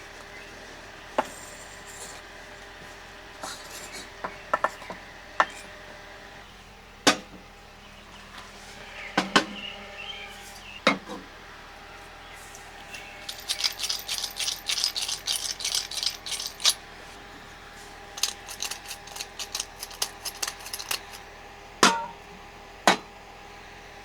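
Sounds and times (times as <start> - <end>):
dishes and utensils clinking: 13.2 - 16.8, 18.2 - 21.2.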